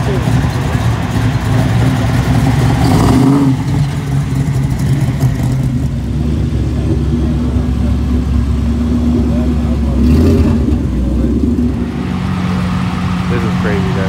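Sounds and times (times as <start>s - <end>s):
another car engine: 0.0s - 14.0s
car engine rumbling: 0.0s - 14.0s.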